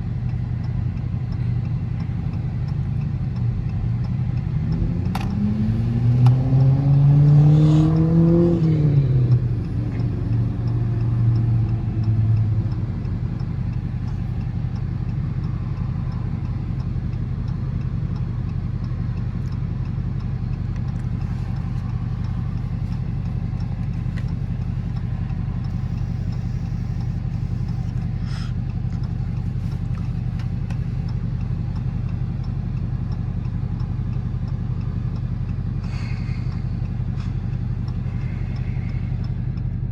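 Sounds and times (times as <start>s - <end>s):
car engine revving: 3.9s - 16.7s.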